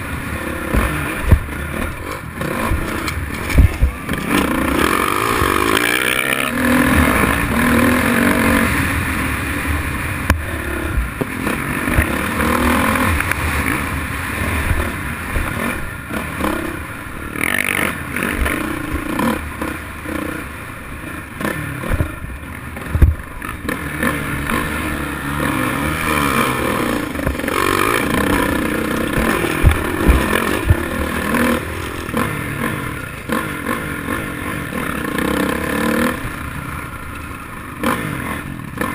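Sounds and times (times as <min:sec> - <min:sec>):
dirt bike engines revving: 0:00.0 - 0:38.9
sharp thumps and clatter: 0:00.6 - 0:07.3, 0:21.8 - 0:23.3, 0:27.1 - 0:32.3.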